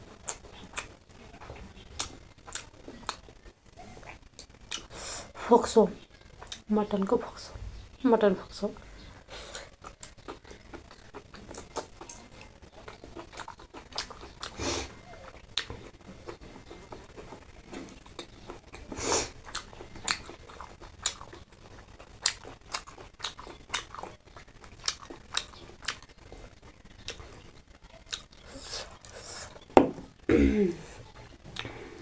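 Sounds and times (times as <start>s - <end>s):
person chewing and biting: 0.2s - 3.2s, 9.5s - 14.6s, 15.3s - 26.1s.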